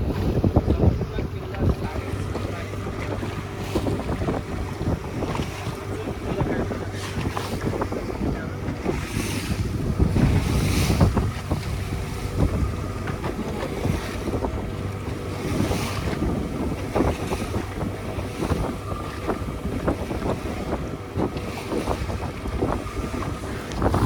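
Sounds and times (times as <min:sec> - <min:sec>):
boat engine hum: 0:00.0 - 0:24.0
water splashing: 0:00.0 - 0:24.0
wind buffeting microphone: 0:00.0 - 0:24.0.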